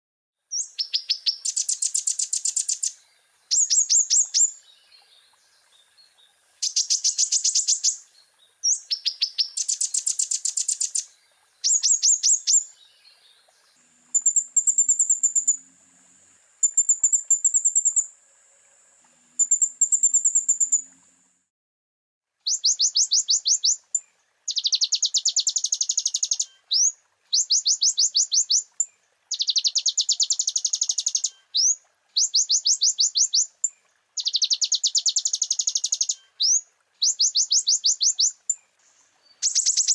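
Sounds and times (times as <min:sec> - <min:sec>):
bird chirping phrases: 0:00.5 - 0:15.8, 0:19.3 - 0:21.1, 0:22.4 - 0:28.7, 0:29.3 - 0:33.5, 0:34.2 - 0:39.9
sunbird rapid high trills: 0:13.6 - 0:21.2.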